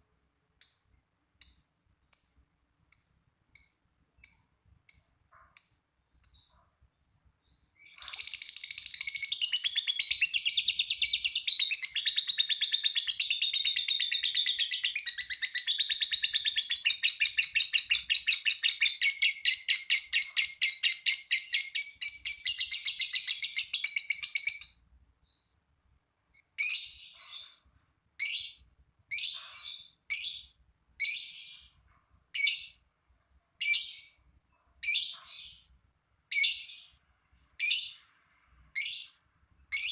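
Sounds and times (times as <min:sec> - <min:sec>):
short sharp bird chirps: 0:00.6 - 0:12.5, 0:22.1 - 0:25.7, 0:26.4 - 0:31.8
bird chattering trill: 0:07.8 - 0:24.8.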